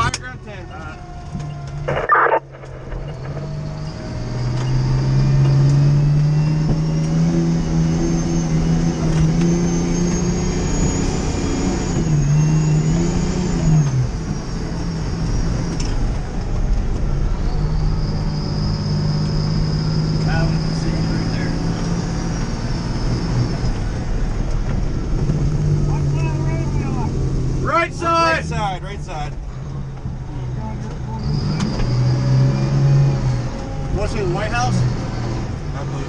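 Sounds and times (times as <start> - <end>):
fire engine accelerating: 0.0 - 36.0
short burst of noise: 1.9 - 4.9.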